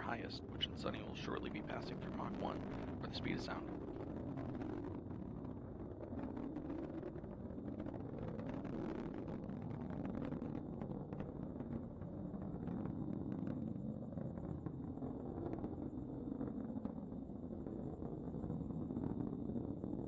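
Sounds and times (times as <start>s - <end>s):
rocket engine rumbling: 0.0s - 20.0s.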